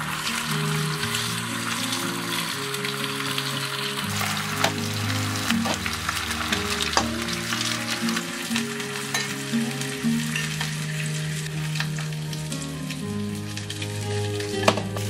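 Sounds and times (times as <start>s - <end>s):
fish sizzling in a frying pan: 0.0s - 15.0s
risotto simmering: 0.0s - 15.0s
metal ladle clinking: 9.1s - 9.4s.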